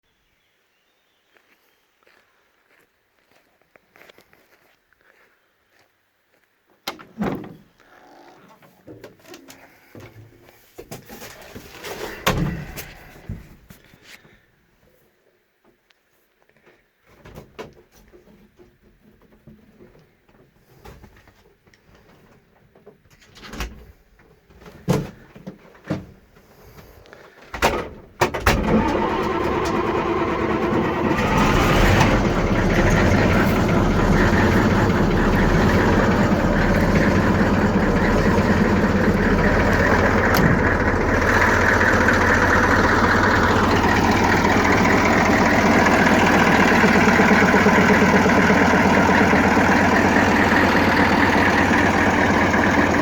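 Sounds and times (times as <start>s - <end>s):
diesel engine starting and idling: 11.2s - 13.6s, 27.6s - 53.0s.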